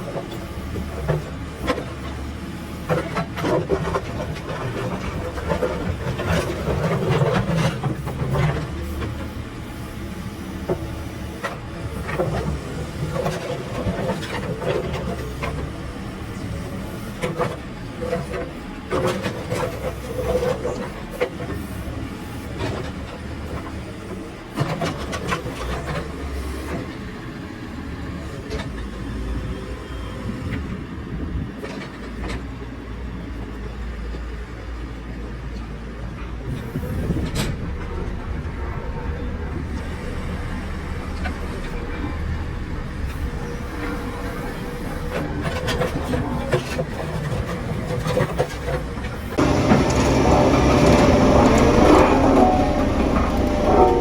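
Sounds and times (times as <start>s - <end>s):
diesel engine running: 39.6s - 54.0s
knocks and clanks: 49.4s - 54.0s.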